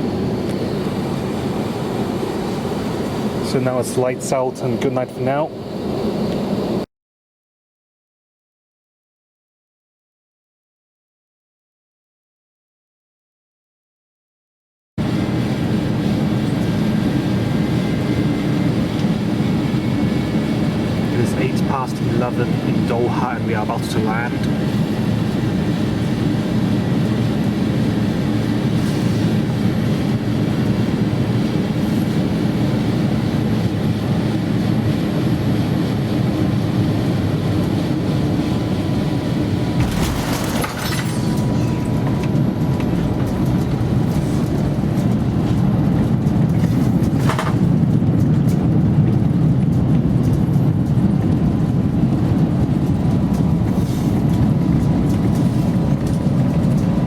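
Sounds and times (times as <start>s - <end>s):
aircraft cabin engine rumble: 0.0s - 6.9s, 15.0s - 57.0s.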